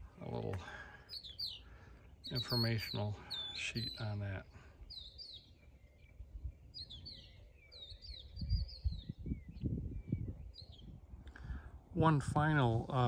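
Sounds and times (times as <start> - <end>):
small birds chirping: 0.0 - 11.8
wind buffeting microphone: 4.8 - 13.0.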